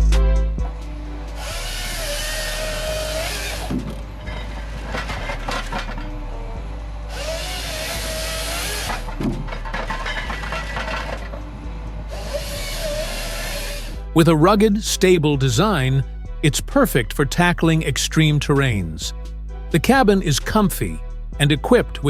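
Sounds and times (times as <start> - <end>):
machine engine drone: 0.0 - 14.2
hydraulic saw cutting wood: 0.6 - 14.3.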